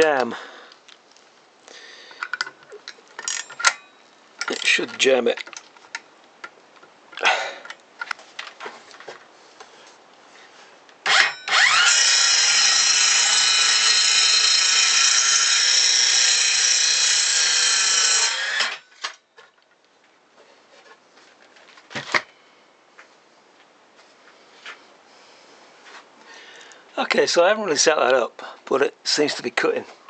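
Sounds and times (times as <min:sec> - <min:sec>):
circular saw cutting wood: 0:11.1 - 0:19.0.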